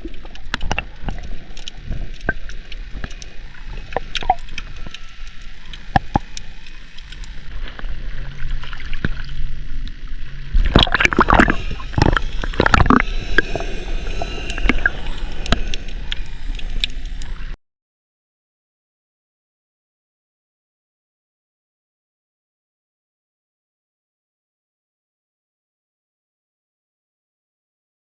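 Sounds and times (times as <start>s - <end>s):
water splashing and sloshing: 0.0s - 17.6s.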